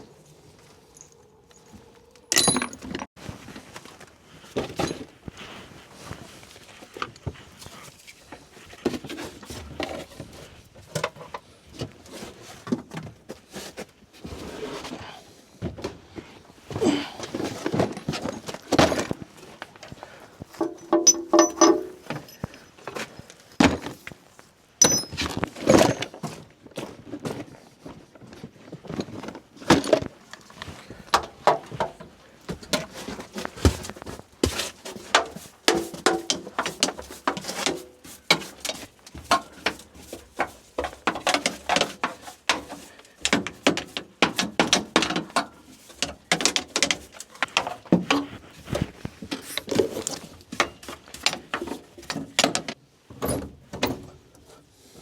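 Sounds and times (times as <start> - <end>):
hard objects knocking and rattling: 2.3 - 3.2, 20.4 - 23.0, 24.8 - 26.2, 31.0 - 54.0.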